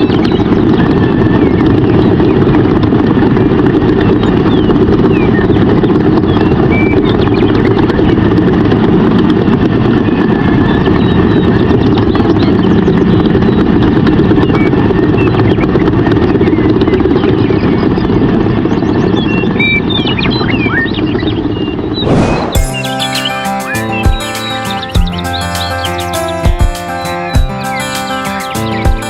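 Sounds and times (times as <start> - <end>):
loud low rumble: 21.4 - 23.1.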